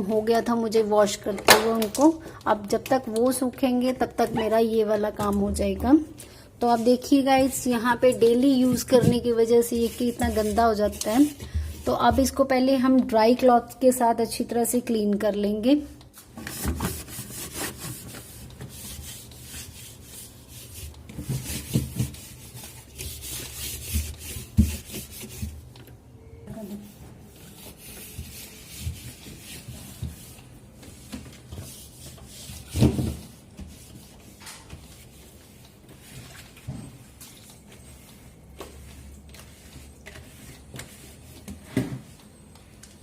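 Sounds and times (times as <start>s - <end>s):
cloth wiping inside fridge: 6.6s - 12.4s, 16.3s - 25.6s, 26.5s - 42.1s.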